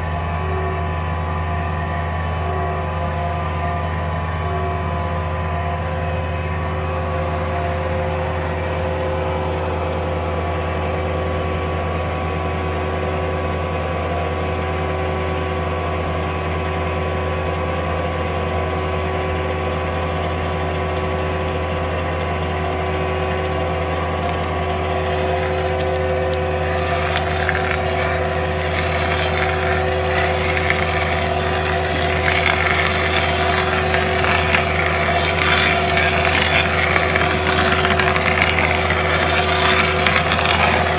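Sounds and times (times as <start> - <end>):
stump grinder engine hum: 0.0 - 40.9
rough crackling noise: 23.4 - 40.9.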